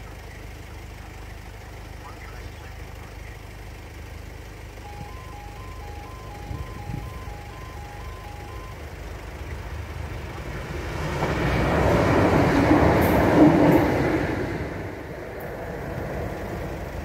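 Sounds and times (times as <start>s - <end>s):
level crossing warning alarm: 4.7s - 9.7s
train passing: 4.8s - 17.0s.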